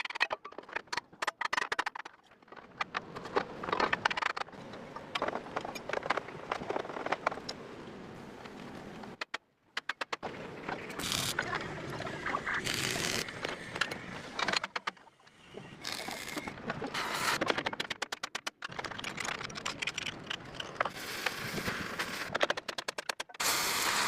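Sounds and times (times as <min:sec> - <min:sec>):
welding arc crackling: 0:11.0 - 0:11.4, 0:12.5 - 0:13.4.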